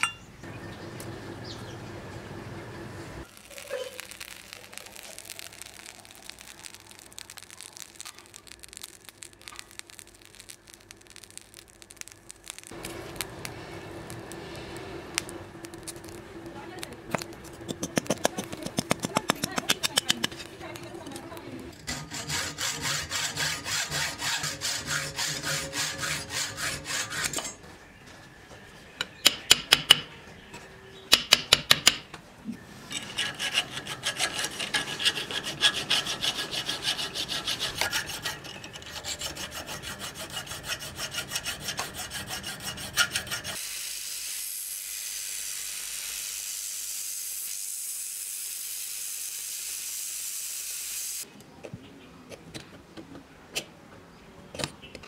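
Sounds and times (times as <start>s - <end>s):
sharp metal taps: 17.7s - 20.4s, 29.0s - 30.1s, 31.1s - 32.1s
file scraping metal: 21.7s - 27.6s, 32.9s - 43.6s
belt grinder sanding metal: 21.8s - 27.5s, 32.9s - 43.7s.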